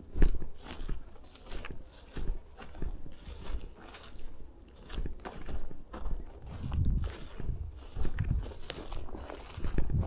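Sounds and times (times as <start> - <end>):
footsteps crunching through undergrowth: 0.0 - 10.0.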